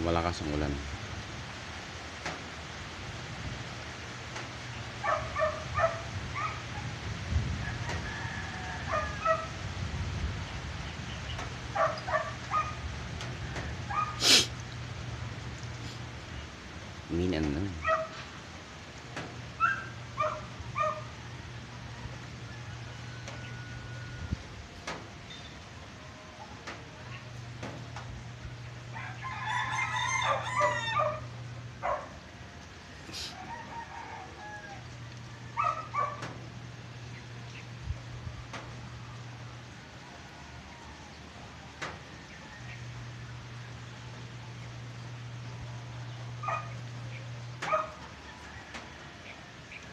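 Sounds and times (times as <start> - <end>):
heavy rain hiss: 0.0 - 49.9
rooster crowing: 7.5 - 9.7, 19.6 - 24.4, 28.8 - 32.1, 33.1 - 36.7, 38.9 - 43.7, 46.0 - 49.8
low steady hum: 9.4 - 49.9
dog yipping and whining: 11.8 - 12.8, 13.9 - 14.4, 19.6 - 21.1, 35.6 - 36.2, 46.4 - 46.8, 47.6 - 48.0.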